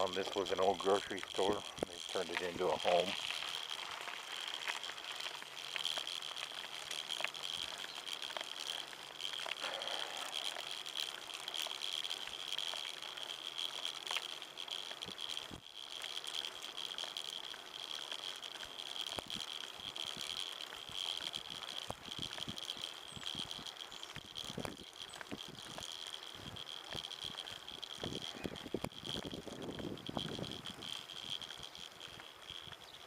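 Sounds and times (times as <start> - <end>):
bicycle rattles and clicks: 0.0 - 33.0
steady high-pitched drone: 9.6 - 11.0.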